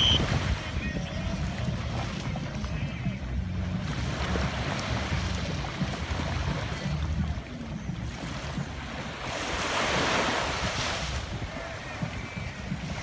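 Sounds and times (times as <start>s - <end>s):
ocean waves washing on shore: 0.0s - 13.0s.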